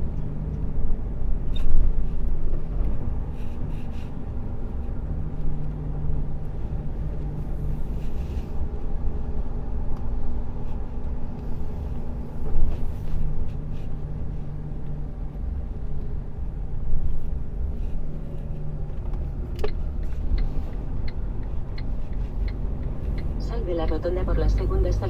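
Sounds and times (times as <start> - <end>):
light ticks: 19.0 - 24.7.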